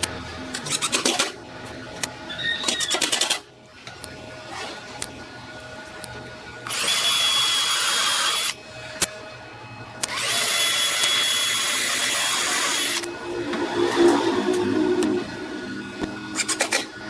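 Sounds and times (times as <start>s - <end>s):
electric drill whining: 6.6s - 8.6s, 10.1s - 13.1s.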